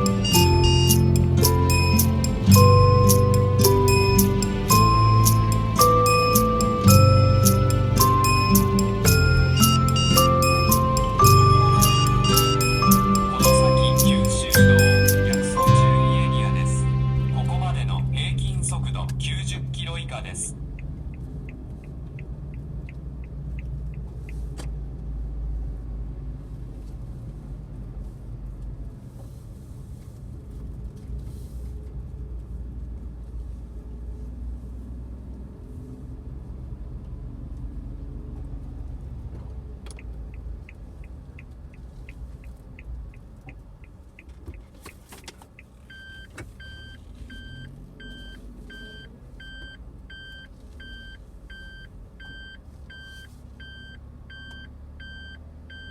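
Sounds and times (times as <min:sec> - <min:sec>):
electronic beep: 0:00.0 - 0:19.2
turn signal ticking: 0:00.0 - 0:24.8, 0:39.8 - 0:55.9
engine and road rumble: 0:00.0 - 0:55.9.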